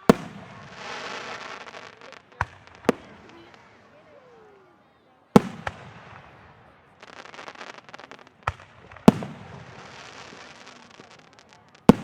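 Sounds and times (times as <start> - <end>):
fireworks booming: 0.0 - 4.6, 5.4 - 12.0
crackling fireworks stars: 0.0 - 12.0.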